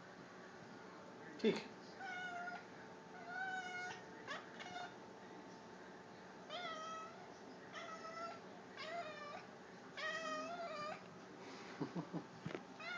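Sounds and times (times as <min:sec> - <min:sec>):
cat meowing: 0:10.0 - 0:11.0.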